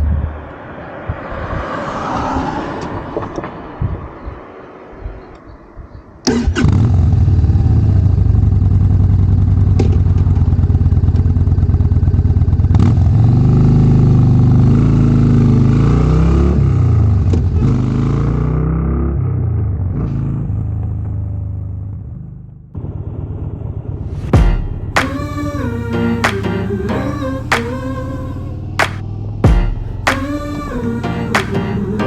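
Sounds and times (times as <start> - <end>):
motorcycle engine starting and revving: 6.4 - 15.8.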